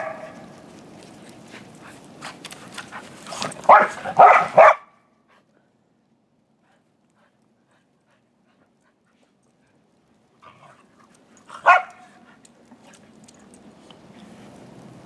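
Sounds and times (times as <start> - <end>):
dog barking: 0.0 - 0.4, 3.3 - 4.9, 11.6 - 12.1
scuffling and rustle: 0.1 - 4.6.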